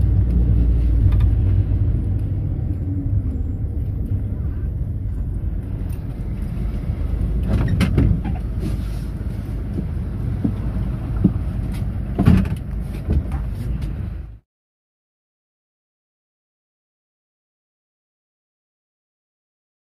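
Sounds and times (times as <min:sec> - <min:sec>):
engine and road rumble: 0:00.0 - 0:14.4
rattles and knocks: 0:05.7 - 0:14.0.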